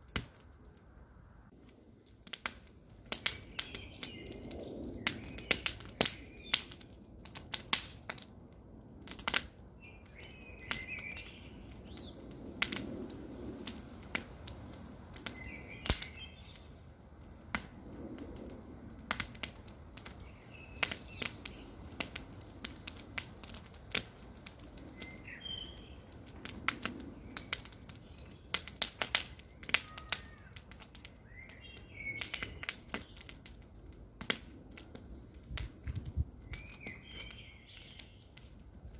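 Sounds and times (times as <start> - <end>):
campfire crackling: 0.0 - 38.9
bird chirping: 15.3 - 16.8, 25.0 - 26.1, 36.5 - 38.7.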